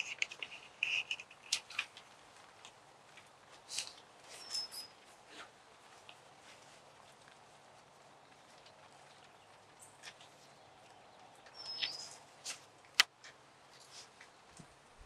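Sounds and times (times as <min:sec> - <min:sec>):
bird whistled call: 0:04.4 - 0:04.9, 0:11.6 - 0:12.2.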